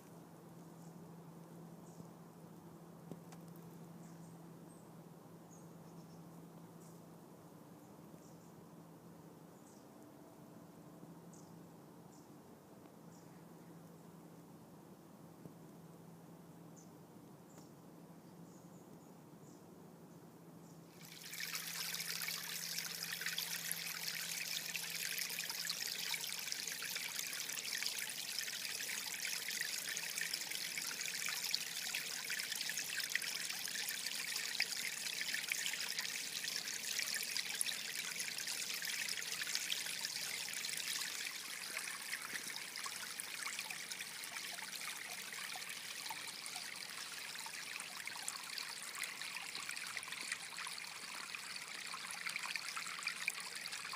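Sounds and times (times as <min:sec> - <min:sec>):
stream trickling: 0:20.9 - 0:53.9.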